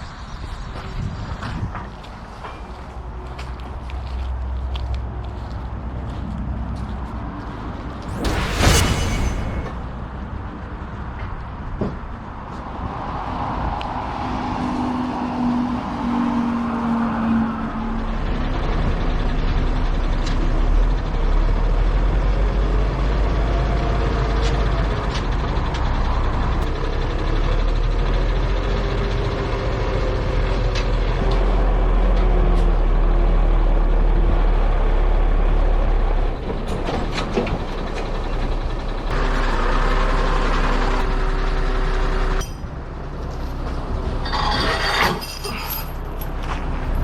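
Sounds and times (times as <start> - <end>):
diesel truck engine running: 17.8 - 44.2.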